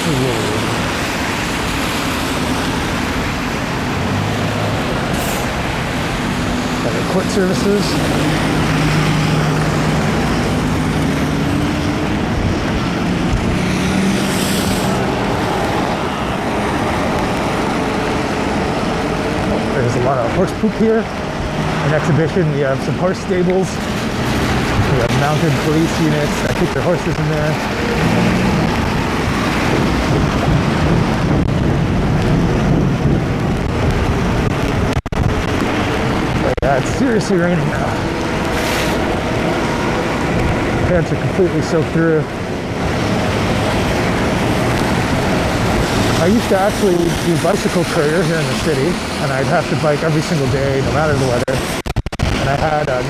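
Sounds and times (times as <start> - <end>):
wind rush: 0.0 - 22.2, 23.7 - 53.0
heavy rain: 0.0 - 53.0
wet road noise: 0.0 - 53.0
tyre hiss on wet pavement: 13.6 - 15.2, 38.4 - 39.2
wind buffeting microphone: 23.8 - 41.3.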